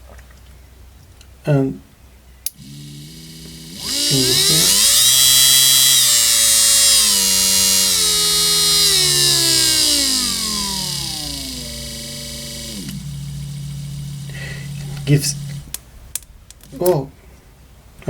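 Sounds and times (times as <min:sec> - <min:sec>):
electric motor whining: 0:02.5 - 0:15.8
constant high whine: 0:02.5 - 0:16.9.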